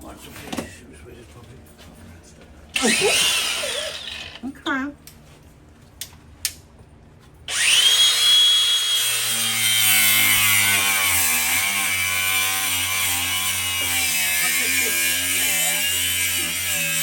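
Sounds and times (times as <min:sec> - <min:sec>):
power tool whining: 0:02.8 - 0:04.4, 0:07.5 - 0:17.0.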